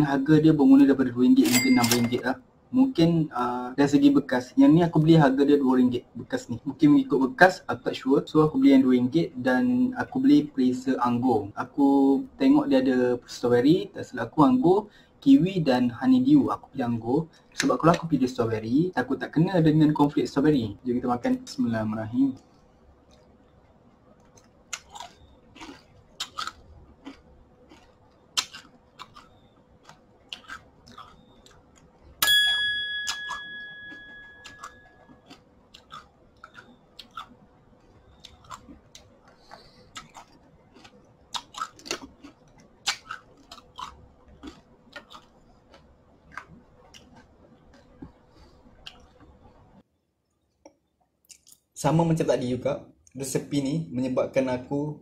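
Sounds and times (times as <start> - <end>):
loud ringing ding: 1.5 - 2.2, 32.2 - 35.0
chewing cornflakes: 24.1 - 32.0, 33.9 - 49.2
spoon clicking on ceramic bowl: 32.2 - 34.9.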